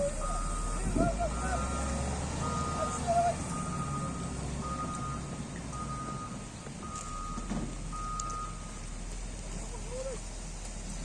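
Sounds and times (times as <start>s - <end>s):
reversing alarm beeping: 0.0s - 8.8s
diesel engine running: 0.0s - 11.0s.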